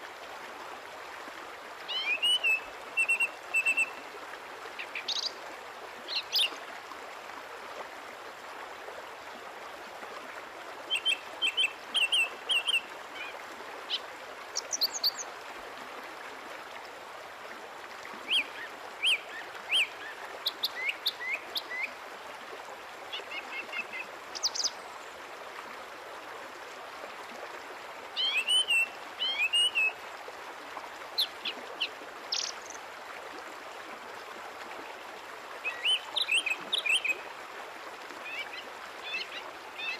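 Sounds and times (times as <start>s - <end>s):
small birds chirping: 32.3s - 32.8s.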